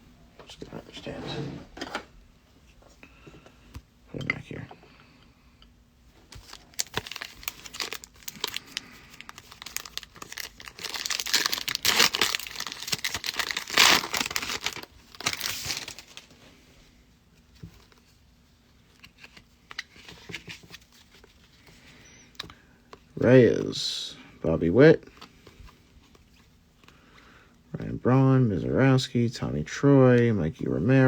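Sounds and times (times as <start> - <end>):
wrapper crinkling and tearing: 6.3 - 16.3.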